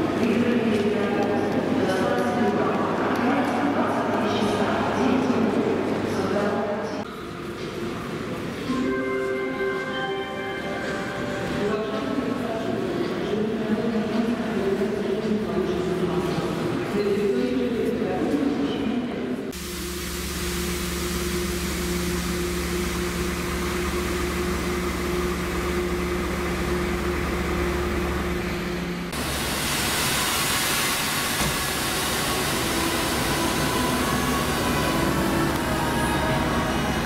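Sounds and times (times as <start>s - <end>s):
electric trains humming: 19.5s - 37.0s
electric locomotive whirring: 19.6s - 37.0s.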